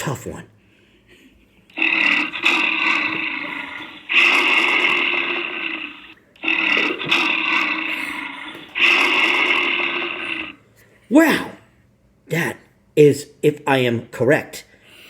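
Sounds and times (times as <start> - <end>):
grizzly bear roaring: 1.7 - 10.6.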